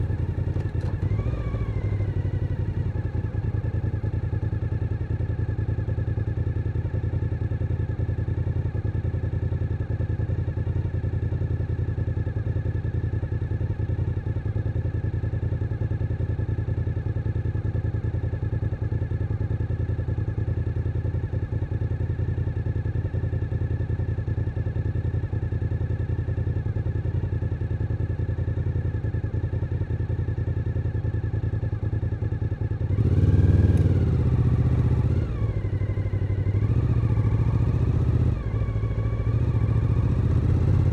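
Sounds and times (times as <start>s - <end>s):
motorcycle engine revving: 0.0s - 3.8s, 32.9s - 40.9s.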